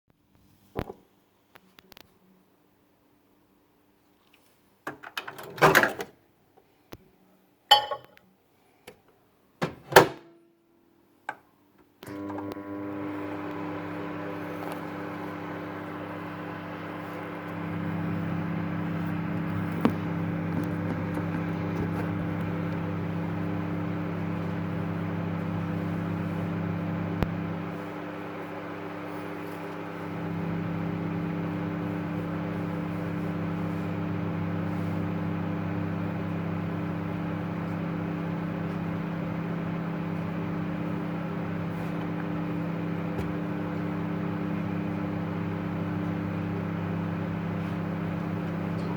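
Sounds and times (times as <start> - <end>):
microwave oven humming: 12.0 - 48.9.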